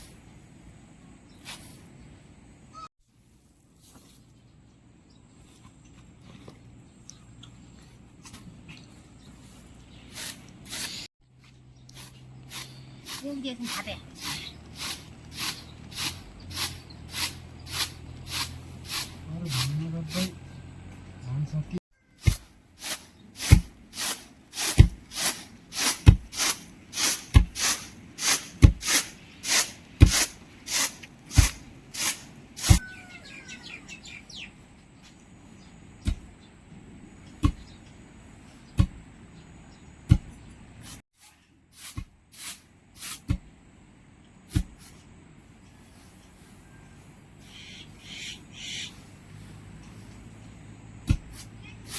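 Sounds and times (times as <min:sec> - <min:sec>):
faint bird chirps: 0:32.8 - 0:35.8, 0:45.8 - 0:49.2.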